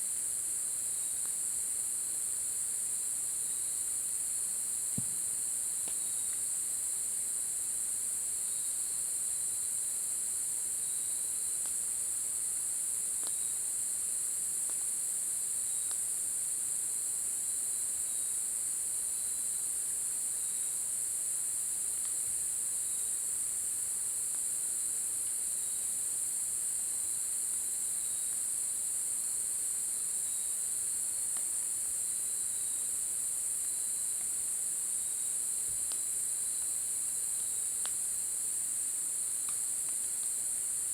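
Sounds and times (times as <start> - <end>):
crickets chirping: 0.5 - 40.9
faint ticks: 37.8 - 38.0, 39.4 - 40.4.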